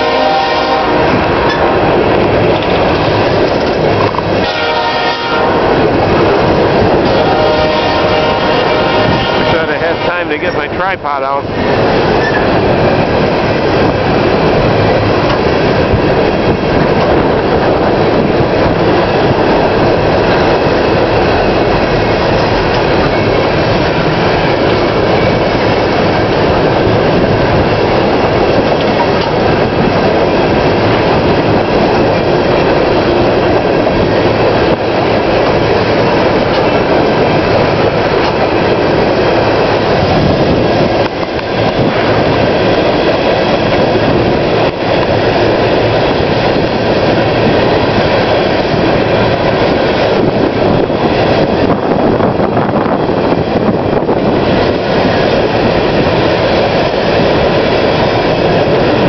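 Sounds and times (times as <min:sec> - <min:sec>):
train wheels clickety-clack: 0:00.0 - 0:59.0.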